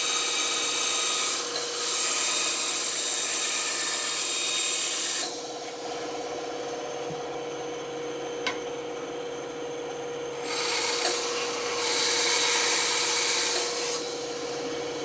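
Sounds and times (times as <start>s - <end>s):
saw blade cutting wood: 0.0s - 5.4s, 10.4s - 14.3s
band saw humming: 10.0s - 15.0s.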